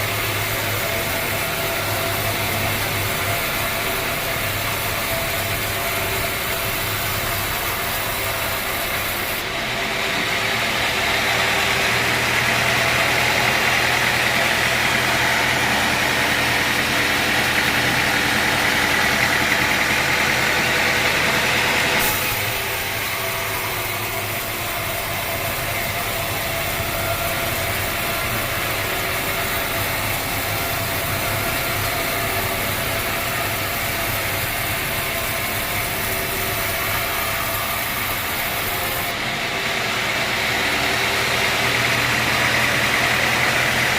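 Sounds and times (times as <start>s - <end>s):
sawmill machinery humming: 0.0s - 43.9s.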